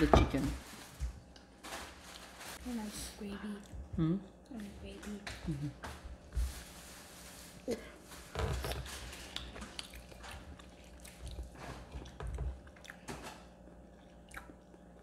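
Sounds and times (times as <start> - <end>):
chewing crispy fried chicken: 8.5 - 15.0.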